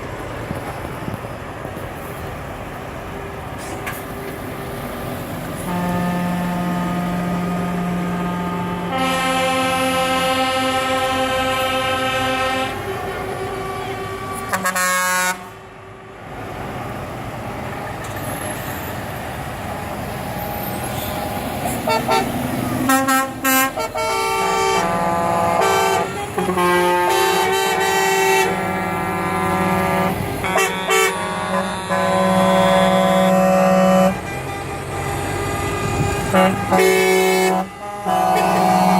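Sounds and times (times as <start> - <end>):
traffic rushing: 0.0 - 38.9
truck air horns blowing: 5.6 - 15.6, 20.9 - 38.9.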